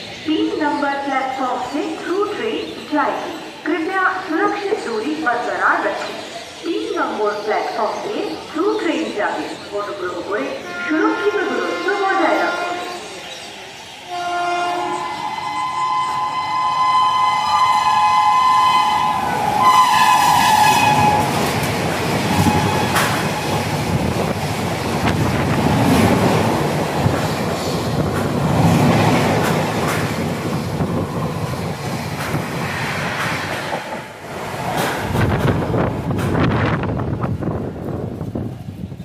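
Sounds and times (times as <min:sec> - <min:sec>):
locomotive air horn blast: 0:14.1 - 0:21.4
train rumble: 0:14.1 - 0:39.0.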